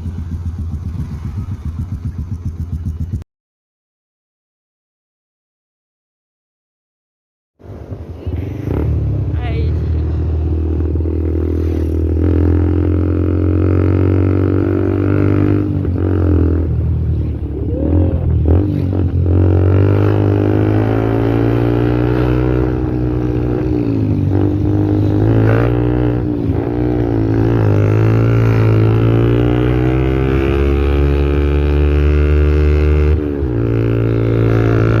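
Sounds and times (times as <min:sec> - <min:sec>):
motorcycle engine idling: 0:00.0 - 0:03.2.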